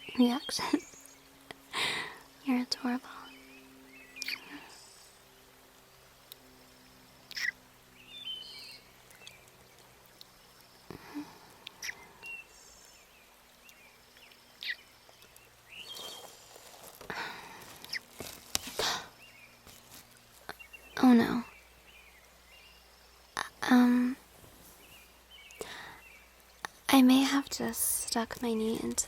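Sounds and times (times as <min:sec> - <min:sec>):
birds chirping: 0:00.0 - 0:29.0
faint steady background: 0:00.0 - 0:29.0
soft rustles: 0:15.8 - 0:20.8, 0:24.2 - 0:25.1.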